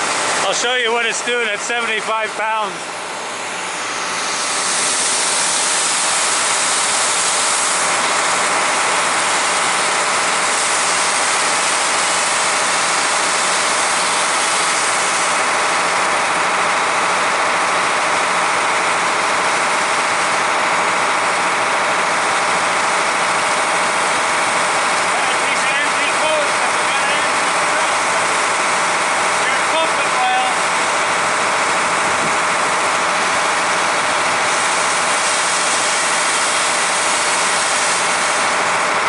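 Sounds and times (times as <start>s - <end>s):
fire engine running: 0.0s - 39.0s
pump rushing hiss: 0.0s - 39.0s.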